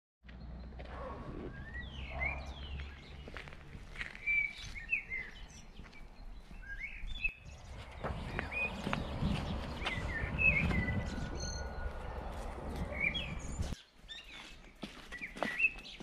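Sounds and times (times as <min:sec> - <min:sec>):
birds chirping and whistling: 0:00.6 - 0:16.0
low rumble: 0:07.5 - 0:13.8.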